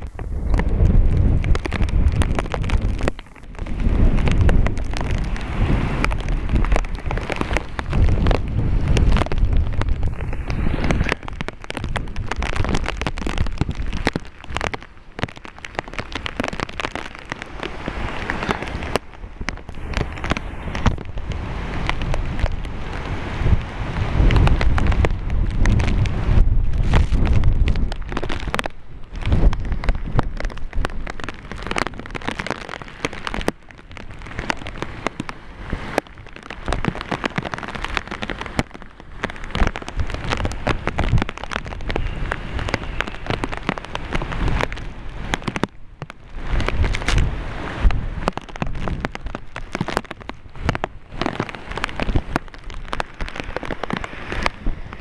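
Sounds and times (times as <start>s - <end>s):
strong low rumble: 0.0s - 14.1s, 18.8s - 32.2s
heavy rain splattering: 0.0s - 55.0s.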